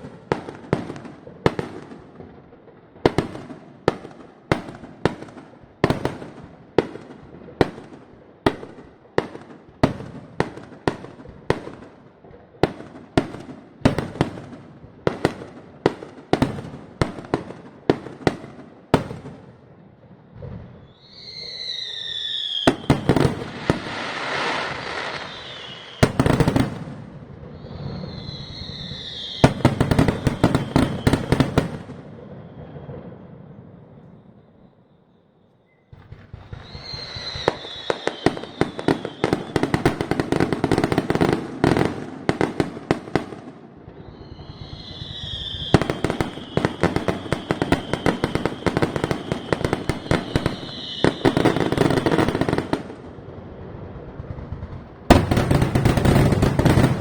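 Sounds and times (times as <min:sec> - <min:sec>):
fireworks crackling: 0:00.0 - 0:34.2, 0:35.7 - 0:57.0
fireworks bangs: 0:00.0 - 0:34.7, 0:35.7 - 0:57.0
whistling firework shells: 0:20.3 - 0:53.1, 0:54.4 - 0:57.0.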